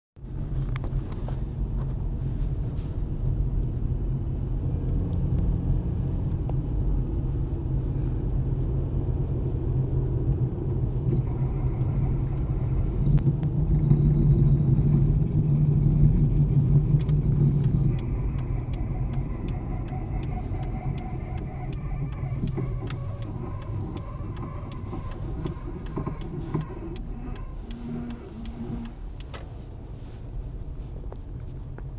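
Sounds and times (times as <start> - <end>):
car engine and road rumble: 0.2 - 31.9
wheel knocking and squeaking: 11.1 - 29.4.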